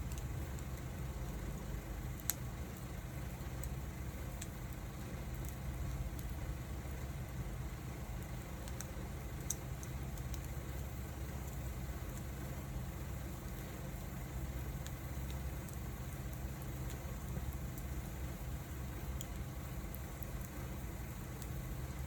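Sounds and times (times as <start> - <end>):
wood crackling and popping: 0.0 - 22.0.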